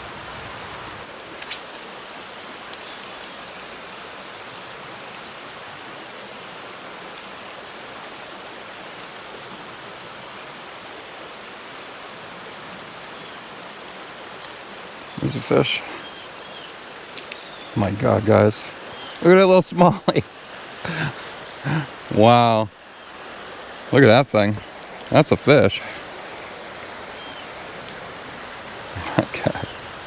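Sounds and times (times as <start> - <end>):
creek water running over rocks: 0.0 - 30.0.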